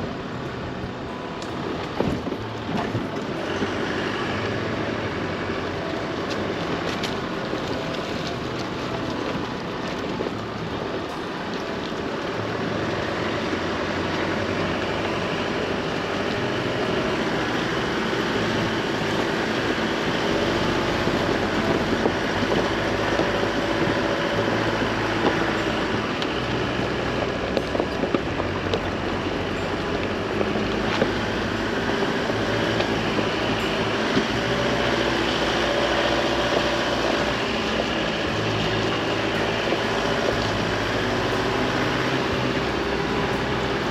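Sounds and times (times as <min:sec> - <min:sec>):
pickup engine hum: 0:00.0 - 0:43.9
wind noise: 0:00.0 - 0:43.9.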